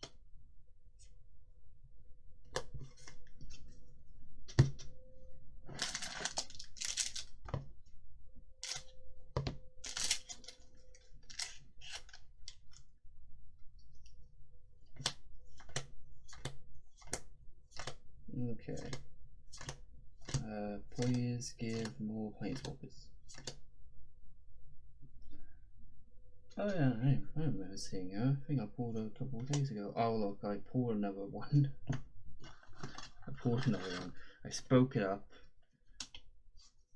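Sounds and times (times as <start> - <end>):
cards rustling: 5.7 - 7.6, 8.6 - 8.9, 9.8 - 12.9, 19.6 - 23.6
cards clicking and tapping: 5.7 - 7.7, 8.6 - 10.6, 15.0 - 18.0, 18.8 - 20.4, 21.0 - 23.6.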